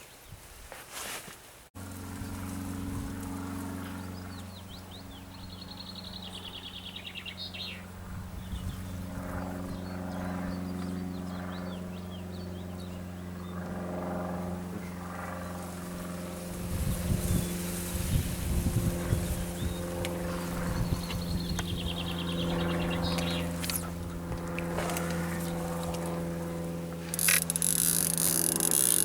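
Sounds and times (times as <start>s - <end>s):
low engine-like drone: 1.8s - 29.0s
small birds chirping: 3.9s - 13.6s, 19.0s - 26.0s.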